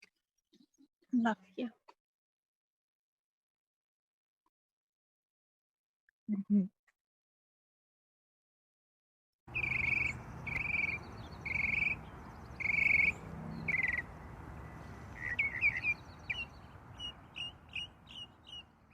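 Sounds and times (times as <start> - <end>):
birds trilling and chirping: 9.5 - 18.9.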